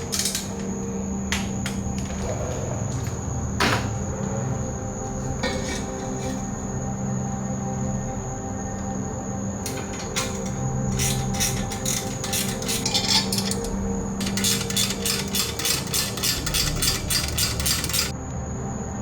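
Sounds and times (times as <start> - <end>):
ratchet wrench clicking: 0.0 - 0.6, 9.7 - 18.1.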